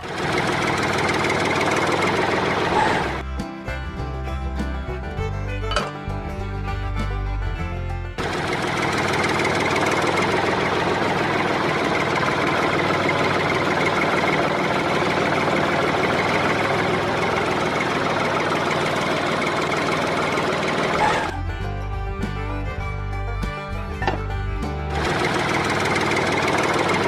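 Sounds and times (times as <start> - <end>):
electric motor rattling drum: 0.0 - 3.2, 8.2 - 21.4, 24.9 - 27.0.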